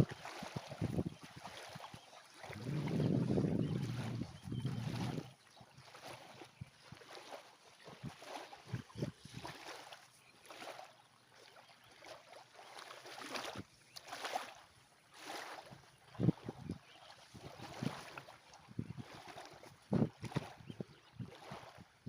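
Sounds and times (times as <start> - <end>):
water lapping at shore: 0.0 - 22.0
wind bumps on microphone: 0.6 - 1.4, 2.4 - 5.3, 8.7 - 9.4, 16.2 - 18.0, 18.7 - 19.2, 19.9 - 21.9.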